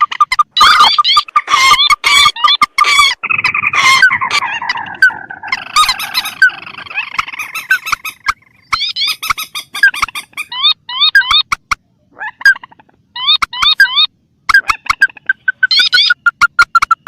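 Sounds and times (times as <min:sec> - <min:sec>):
bird squawks and chatter: 0:00.0 - 0:17.0
short rising bird calls: 0:00.6 - 0:10.5.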